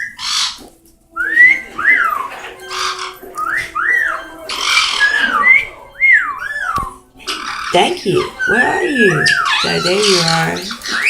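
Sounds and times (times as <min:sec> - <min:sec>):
parrot squawks: 0:00.0 - 0:11.0
parrots whistling: 0:00.0 - 0:11.0.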